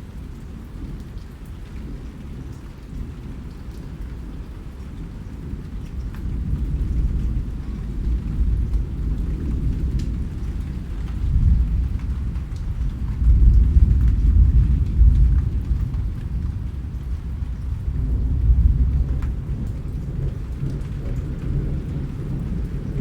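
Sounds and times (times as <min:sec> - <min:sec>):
steady rain: 0:00.0 - 0:23.0
raindrop ticks: 0:00.2 - 0:23.0
rolling thunder rumble: 0:05.2 - 0:23.0.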